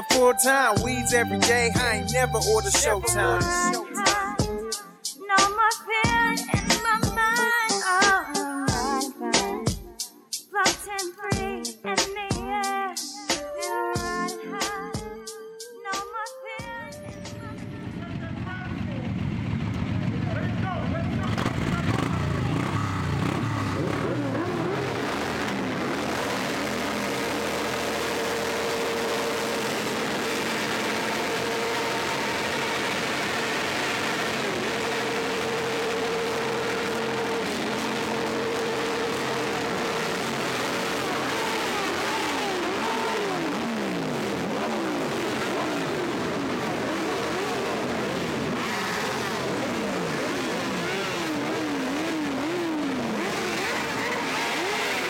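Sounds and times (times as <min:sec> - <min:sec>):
motorcycle engines revving: 0:19.0 - 0:55.0.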